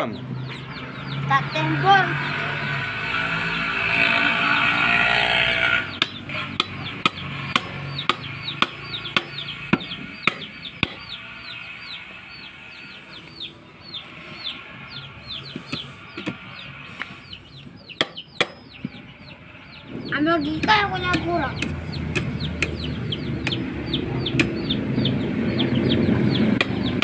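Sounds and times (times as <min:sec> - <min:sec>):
chicks peeping: 0:00.0 - 0:27.0
sharp knocks on wood: 0:06.0 - 0:11.2, 0:18.0 - 0:19.0, 0:26.6 - 0:26.9.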